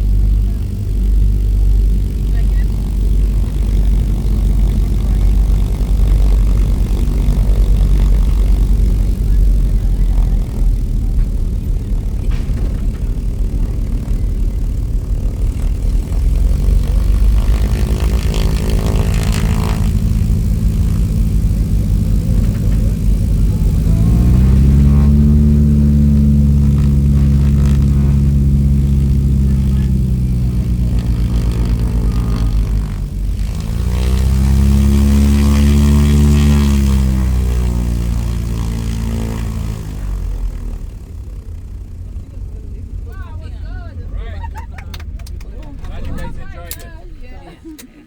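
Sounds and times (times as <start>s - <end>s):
engine revving: 0.0s - 48.0s.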